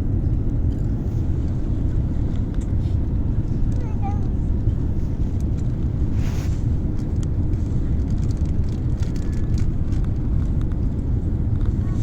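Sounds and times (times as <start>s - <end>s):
jet engines rumbling: 0.0s - 12.0s
wind buffeting microphone: 0.0s - 12.0s.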